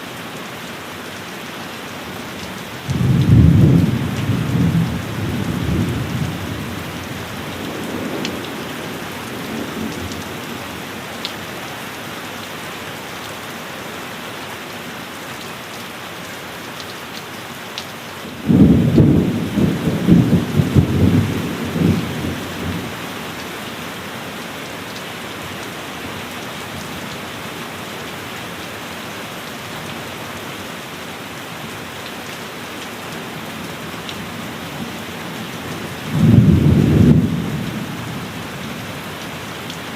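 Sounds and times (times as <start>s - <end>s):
heavy rain falling: 0.0s - 39.9s
thunder rumbling: 2.9s - 10.8s, 18.4s - 22.9s, 36.0s - 38.8s
loud thunderclap: 18.5s - 22.0s, 36.1s - 37.7s.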